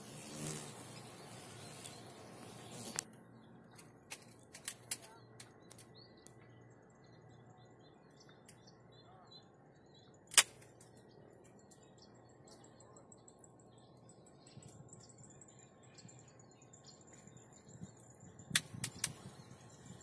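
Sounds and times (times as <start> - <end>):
high insect trill: 0.0 - 3.1
faint bird chirps: 0.0 - 4.4, 5.0 - 20.0
sharp clicks: 2.7 - 6.5, 10.3 - 11.9, 18.5 - 19.2.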